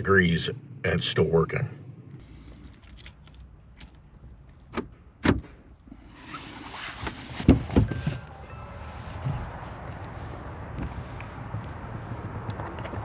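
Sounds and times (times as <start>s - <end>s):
highway traffic rushing: 7.5s - 13.0s.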